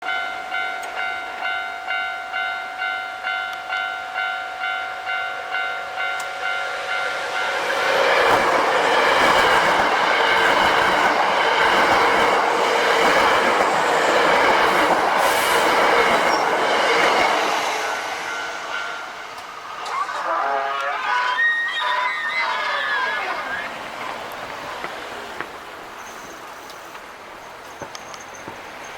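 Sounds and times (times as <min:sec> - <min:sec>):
level crossing alarm ringing: 0:00.0 - 0:22.6
electric train passing at speed: 0:00.0 - 0:28.9.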